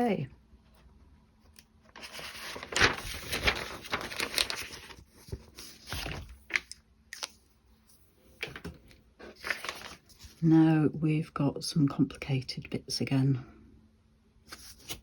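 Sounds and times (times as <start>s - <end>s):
paper rustling and crinkling: 1.8s - 10.5s, 14.5s - 15.0s.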